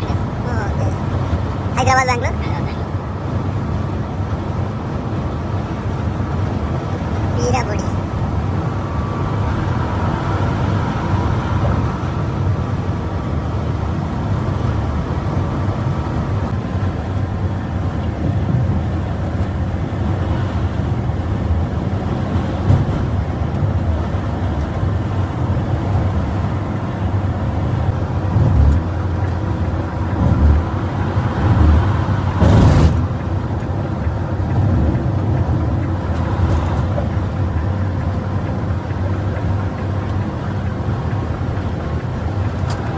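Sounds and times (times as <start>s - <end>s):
bus engine and road noise: 0.0s - 42.9s
knocks and bumps: 28.2s - 37.8s.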